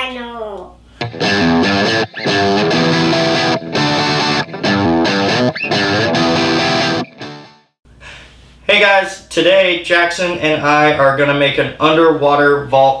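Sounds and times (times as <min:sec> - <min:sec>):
distorted electric guitar: 0:01.0 - 0:07.7.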